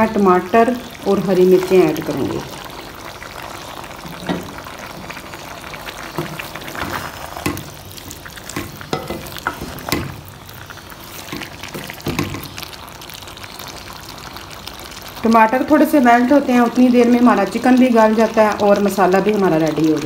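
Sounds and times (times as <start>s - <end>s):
chicken sizzling in oil: 0.0s - 20.0s
wooden spatula scraping a pot: 6.1s - 10.2s.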